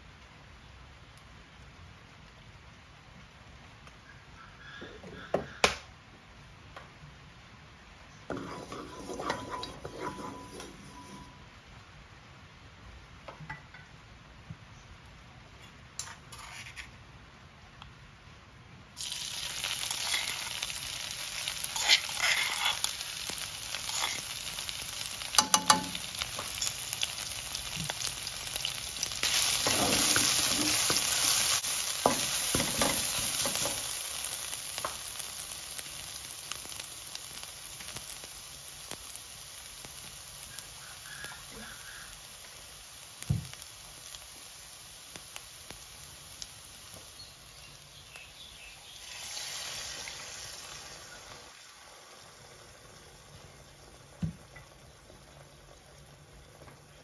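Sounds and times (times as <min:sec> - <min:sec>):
chilli and garlic sizzling in oil: 0:08.1 - 0:12.1, 0:15.8 - 0:17.4, 0:18.9 - 0:57.0.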